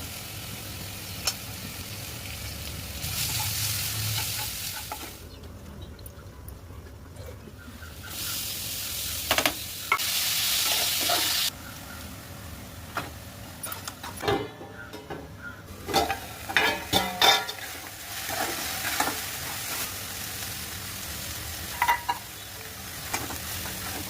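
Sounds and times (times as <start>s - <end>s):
food sizzling in oil: 0.0s - 5.2s, 8.0s - 12.6s, 15.7s - 24.0s
spoon clinking and scraping pan: 15.8s - 19.3s, 21.7s - 22.3s.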